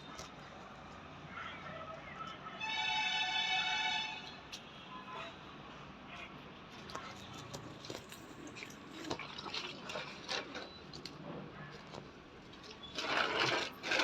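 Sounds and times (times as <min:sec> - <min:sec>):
water splashing: 0:08.4 - 0:11.2.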